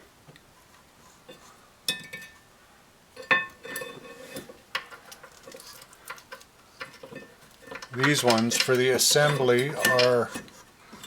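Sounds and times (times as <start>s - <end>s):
bolts and wrench clinking: 4.8s - 10.6s.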